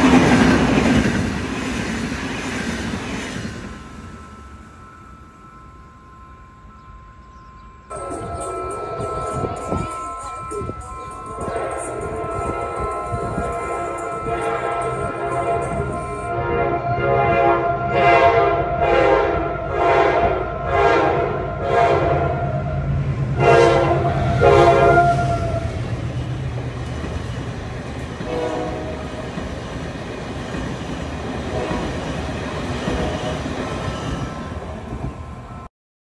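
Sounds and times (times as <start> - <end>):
train coaches rumbling and clattering: 0.0 - 6.2, 7.8 - 35.7
locomotive horn blasts: 7.9 - 10.0, 10.6 - 25.8, 28.2 - 29.2, 31.5 - 32.1.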